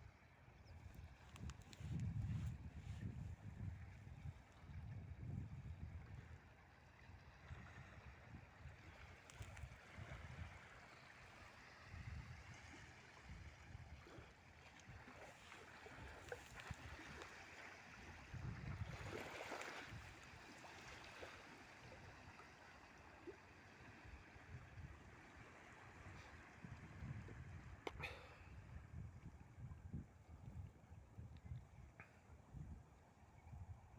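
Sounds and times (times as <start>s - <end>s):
water lapping against riverbank: 0.0s - 33.9s
wind buffeting microphone: 0.6s - 6.4s, 18.0s - 20.3s, 26.0s - 33.9s.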